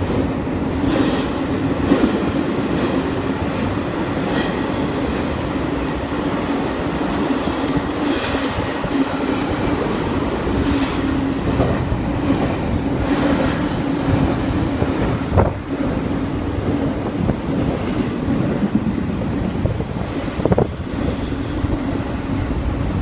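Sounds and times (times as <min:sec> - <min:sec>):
freight train rumbling on rails: 0:00.0 - 0:23.0.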